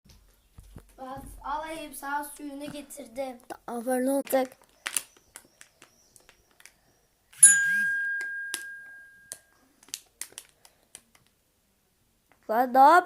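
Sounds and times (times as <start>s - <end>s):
bell-like ding: 7.4s - 9.5s.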